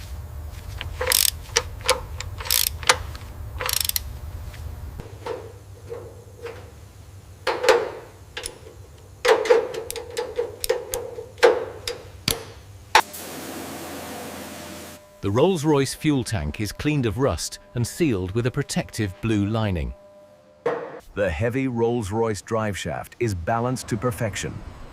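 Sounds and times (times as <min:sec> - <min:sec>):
low hum: 0:00.0 - 0:12.4
tools clanking on metal: 0:05.0 - 0:06.8, 0:07.4 - 0:12.5.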